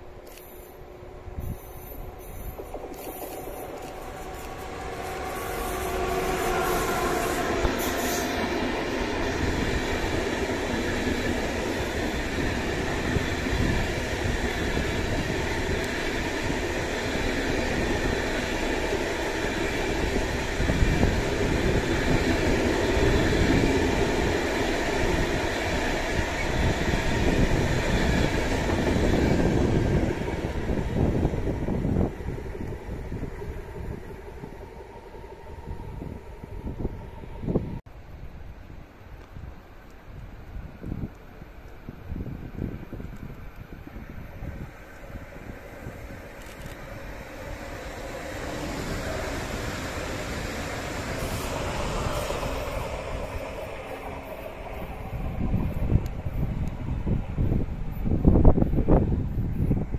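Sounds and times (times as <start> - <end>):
locomotive whining: 0.1 - 37.8, 43.9 - 59.9.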